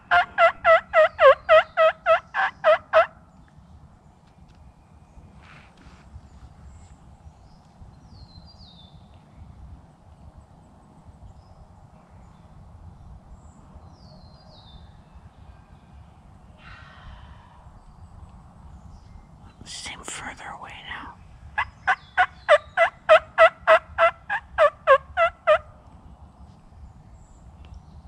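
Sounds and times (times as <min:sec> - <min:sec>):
distant turkey gobbling: 0:00.0 - 0:03.2, 0:21.6 - 0:25.7.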